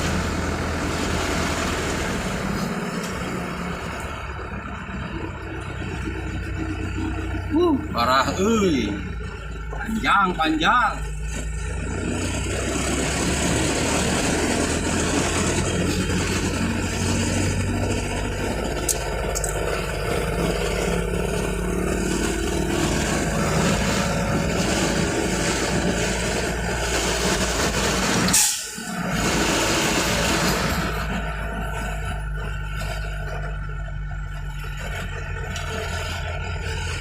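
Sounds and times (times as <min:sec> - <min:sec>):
traffic engines droning: 0:00.0 - 0:37.0
loud burst of noise: 0:22.0 - 0:31.5.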